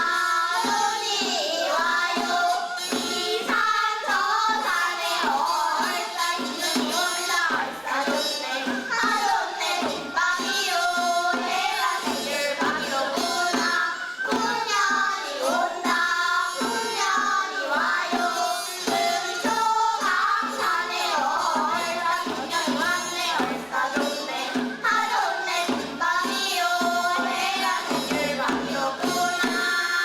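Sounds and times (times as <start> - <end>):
drum beat: 0.0 - 29.7
folk singing voices: 0.0 - 30.0.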